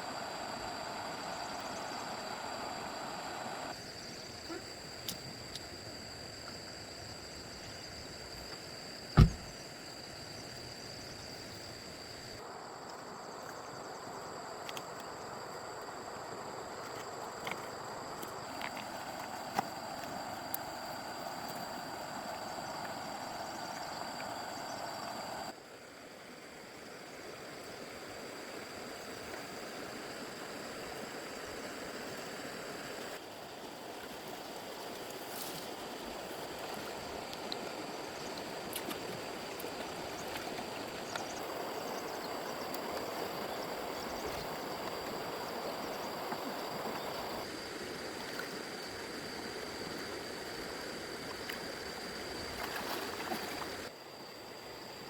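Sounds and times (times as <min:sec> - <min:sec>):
faint high whine: 0:00.0 - 0:05.8.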